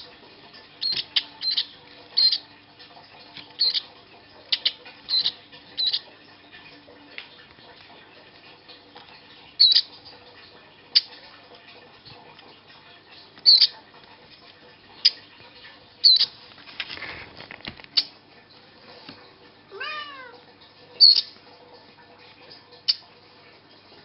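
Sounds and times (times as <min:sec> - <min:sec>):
baby bird chirping: 0:00.8 - 0:02.5, 0:03.6 - 0:03.9, 0:04.5 - 0:06.1, 0:09.6 - 0:09.9, 0:13.4 - 0:13.7, 0:16.0 - 0:16.3, 0:21.0 - 0:21.3
cat meowing: 0:19.7 - 0:20.4.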